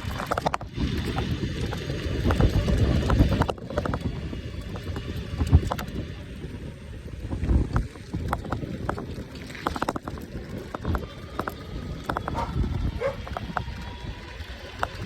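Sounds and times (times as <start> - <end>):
bike clicks and knocks: 0.0 - 15.0
wind buffeting microphone: 0.0 - 15.0.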